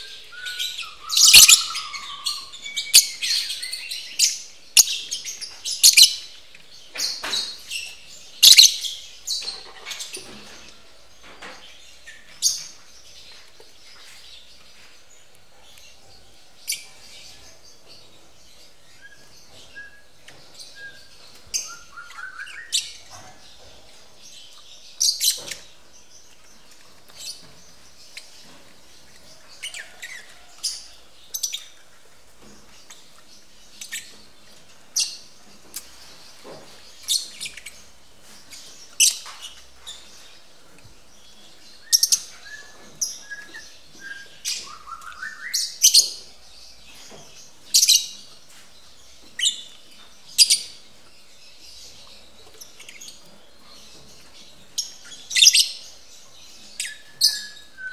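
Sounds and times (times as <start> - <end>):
rising squeaky bird calls: 0.0 - 5.0
lovebirds chirping shrilly: 0.0 - 10.7, 16.6 - 23.6.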